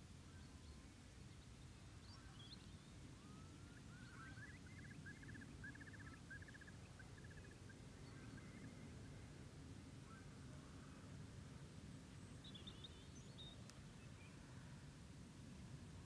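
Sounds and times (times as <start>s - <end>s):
faint bird calls: 2.0s - 9.2s, 10.0s - 11.1s.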